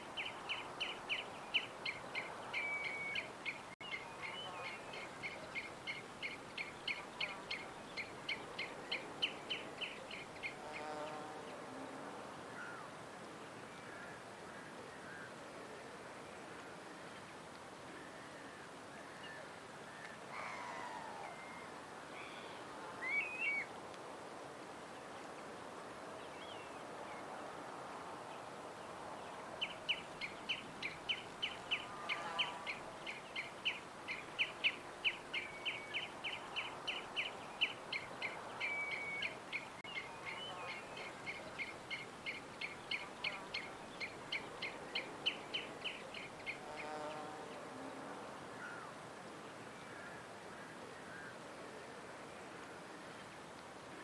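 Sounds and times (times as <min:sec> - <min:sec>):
faint outdoor hiss: 0:00.0 - 0:54.0
wild birds chirping: 0:00.1 - 0:11.2, 0:29.2 - 0:47.7.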